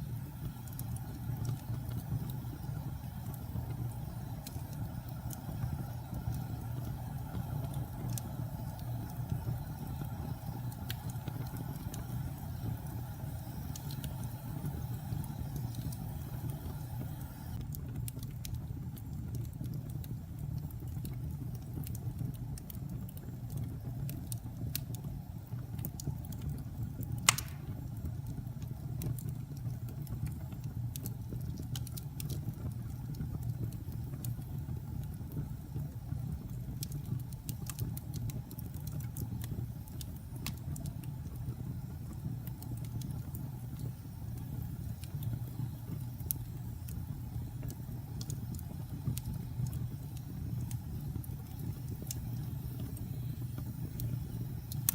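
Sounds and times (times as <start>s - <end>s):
fire burning in fireplace: 0.0s - 54.9s
fire crackles: 0.0s - 54.9s
loud pop: 27.3s - 27.8s.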